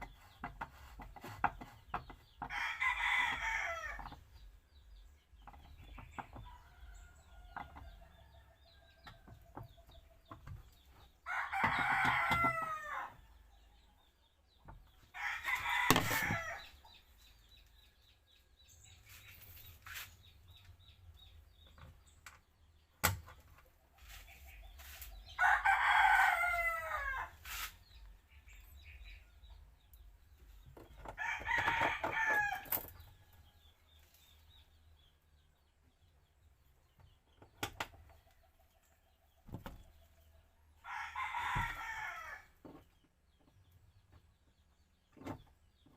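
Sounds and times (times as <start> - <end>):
rooster crowing: 11.3 - 13.1, 25.4 - 27.3, 31.2 - 32.6, 40.8 - 42.5.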